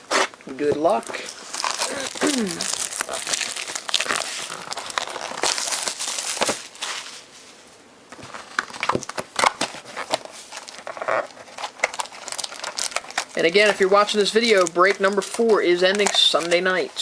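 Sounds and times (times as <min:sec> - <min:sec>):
packaging crinkling and tearing: 0:00.9 - 0:07.3, 0:08.2 - 0:17.0.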